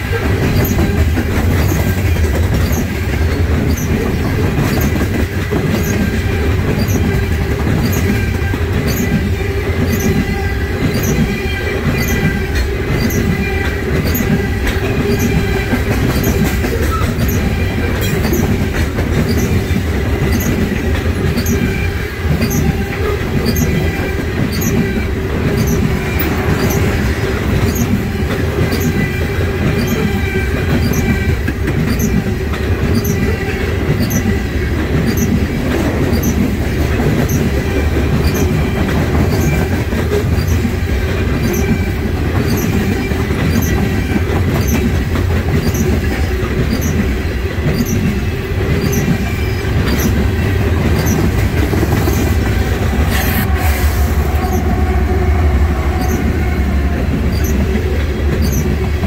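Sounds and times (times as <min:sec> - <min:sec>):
wheels clicking over rail joints: 0:00.0 - 0:53.6, 0:56.0 - 0:59.0
freight train rumbling past: 0:00.0 - 0:59.0
wheel squeal: 0:02.6 - 0:02.9, 0:03.7 - 0:05.0, 0:05.7 - 0:07.2, 0:07.8 - 0:09.2, 0:09.8 - 0:18.6, 0:19.2 - 0:31.3, 0:31.9 - 0:32.2, 0:32.9 - 0:33.4, 0:34.0 - 0:34.3, 0:35.0 - 0:35.4, 0:36.1 - 0:36.4, 0:38.2 - 0:40.7, 0:41.4 - 0:44.9, 0:45.6 - 0:46.0, 0:46.6 - 0:47.1, 0:47.7 - 0:48.1, 0:48.7 - 0:50.3, 0:50.9 - 0:54.8, 0:56.0 - 0:56.6, 0:57.3 - 0:58.8.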